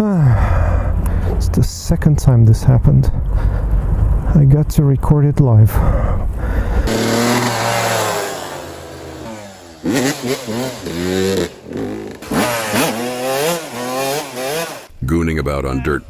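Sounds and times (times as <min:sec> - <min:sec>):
dirt bike engine revving: 0:06.4 - 0:14.9.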